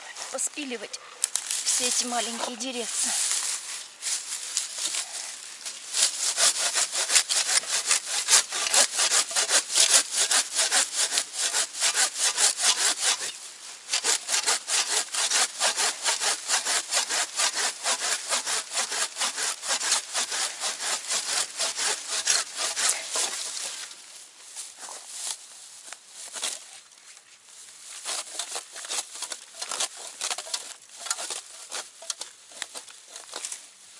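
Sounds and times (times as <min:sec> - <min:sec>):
hand saw cutting wood: 0:05.9 - 0:23.9, 0:28.0 - 0:33.6.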